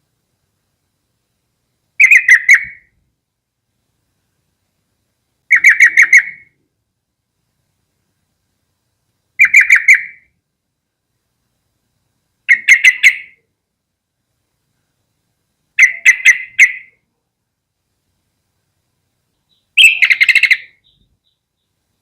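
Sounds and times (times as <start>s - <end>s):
bird calling clipped notes: 19.4s - 21.4s.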